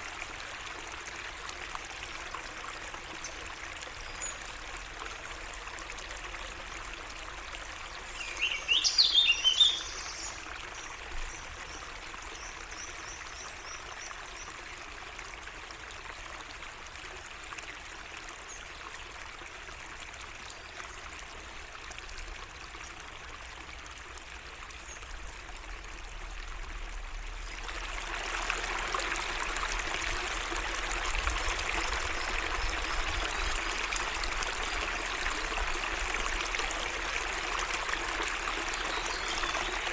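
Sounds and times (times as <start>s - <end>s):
water trickling and flowing: 0.0s - 39.9s
bird chirping: 8.2s - 10.4s.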